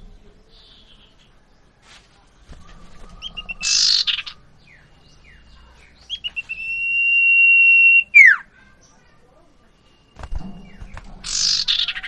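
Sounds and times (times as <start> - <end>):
harsh bird call: 2.8 - 4.8, 6.0 - 8.6, 10.1 - 12.0
bird calling short notes: 6.1 - 8.5
long steady bird whistle: 6.1 - 8.5.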